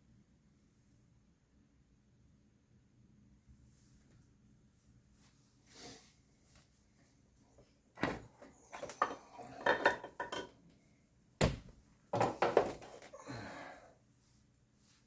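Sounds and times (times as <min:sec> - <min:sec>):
metal tools clinking: 0:08.8 - 0:10.5.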